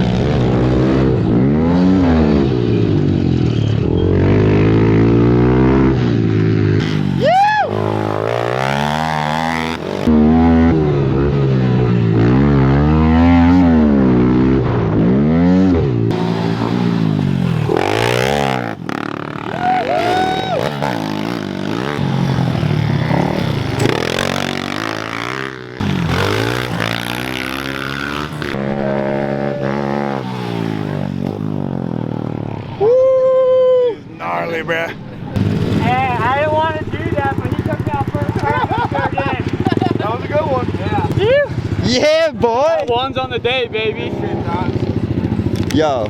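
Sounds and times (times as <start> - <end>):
pit bike engines revving: 0.0 - 46.0.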